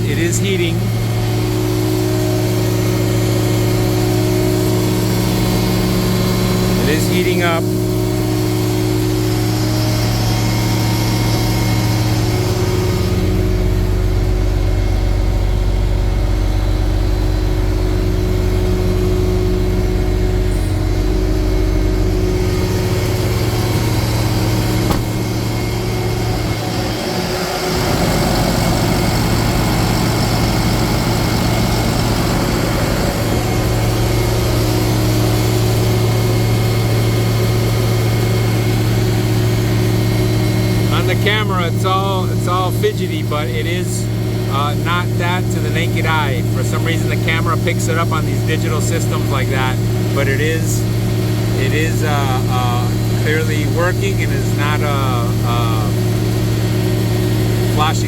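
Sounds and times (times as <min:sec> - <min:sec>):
deep low rumble: 0:00.0 - 0:06.8, 0:07.6 - 0:40.9
diesel truck engine idling: 0:00.0 - 0:58.0.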